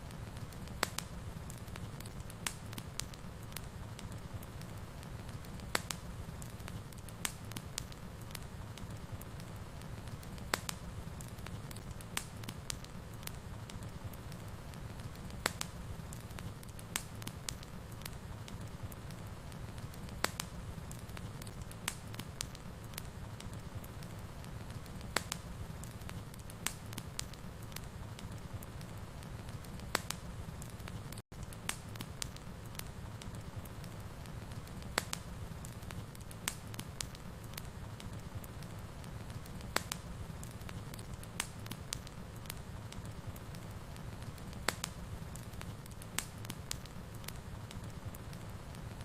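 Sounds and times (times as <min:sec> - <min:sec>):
fire pops and crackles: 0:00.0 - 0:49.0
wood fire low rumble: 0:00.0 - 0:49.0.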